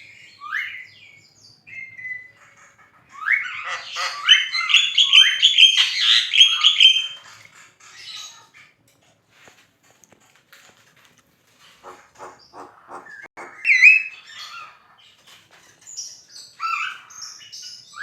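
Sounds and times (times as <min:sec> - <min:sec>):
myna bird singing: 0:00.0 - 0:07.2, 0:11.8 - 0:18.0.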